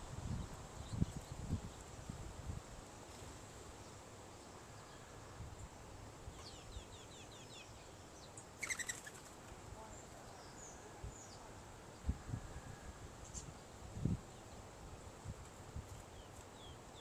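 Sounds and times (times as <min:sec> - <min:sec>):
wind rumbling on microphone: 0:00.0 - 0:02.9, 0:10.9 - 0:16.2
small birds chirping: 0:00.3 - 0:02.1, 0:03.1 - 0:12.1, 0:13.2 - 0:14.8, 0:15.9 - 0:17.0.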